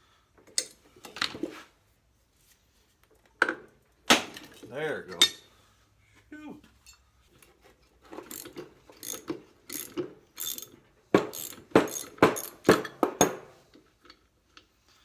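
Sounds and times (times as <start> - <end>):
ratchet wrench clicking: 8.3 - 12.6.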